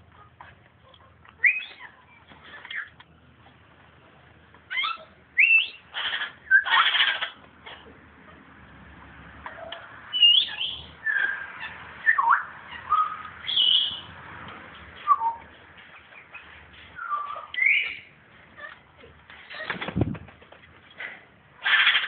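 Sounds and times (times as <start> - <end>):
parrots whistling calls: 1.4 - 1.9, 4.7 - 7.4, 9.5 - 14.1, 16.2 - 18.8.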